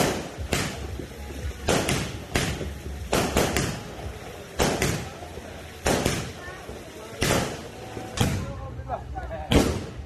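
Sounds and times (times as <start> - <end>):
fireworks exploding: 0.0 - 8.8, 9.4 - 10.0.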